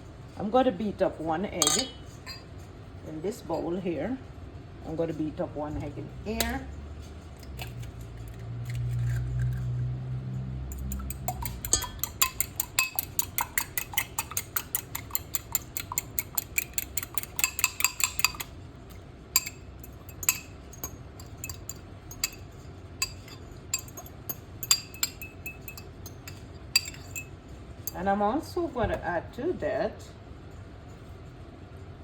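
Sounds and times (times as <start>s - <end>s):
utensil clinking against bowl: 1.6s - 2.6s, 10.7s - 28.2s.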